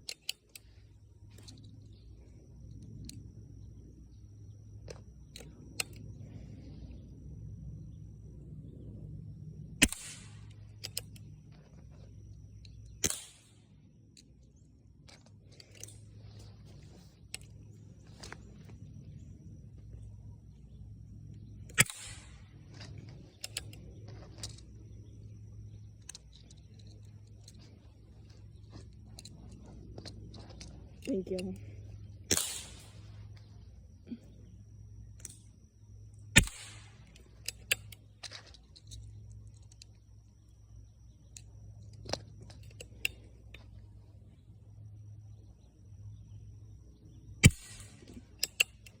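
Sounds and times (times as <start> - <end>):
low background hum: 0.0 - 49.0
gunshots: 9.8 - 10.5, 21.8 - 22.4, 32.3 - 33.0, 36.4 - 37.0, 47.4 - 48.0.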